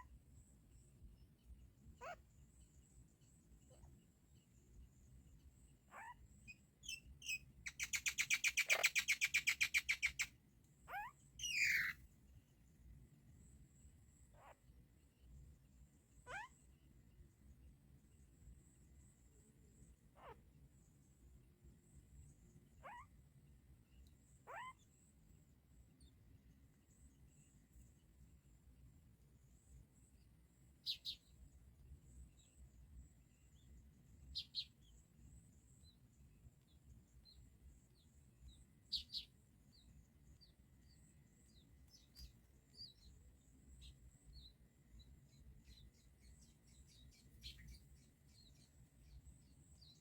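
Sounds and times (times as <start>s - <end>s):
faint background hiss: 0.0s - 50.0s
baby birds squeaking and chattering: 7.7s - 10.3s, 11.4s - 12.0s.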